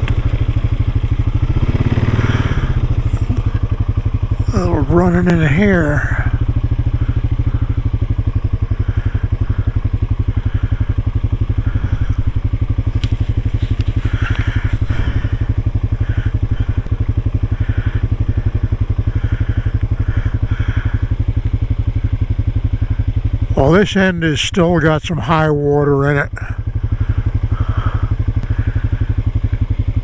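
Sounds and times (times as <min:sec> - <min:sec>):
off-road vehicle engine running: 0:00.0 - 0:30.0
tyres crunching over rocks: 0:12.8 - 0:15.6.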